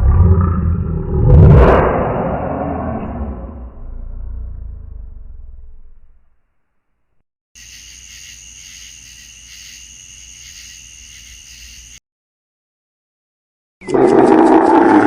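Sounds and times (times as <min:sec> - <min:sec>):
insect high trill: 0:07.6 - 0:12.0.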